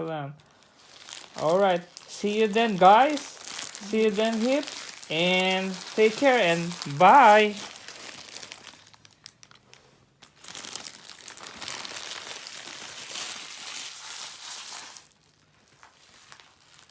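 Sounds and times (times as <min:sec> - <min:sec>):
packaging crinkling: 0:00.4 - 0:16.9.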